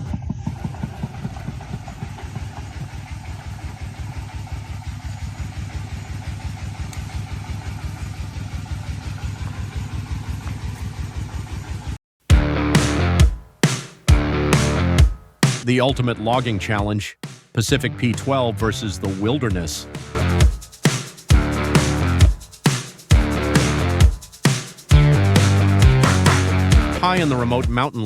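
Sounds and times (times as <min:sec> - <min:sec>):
truck engine running: 0:00.1 - 0:13.2, 0:19.4 - 0:20.6, 0:21.3 - 0:22.3, 0:23.1 - 0:24.2, 0:24.9 - 0:27.6.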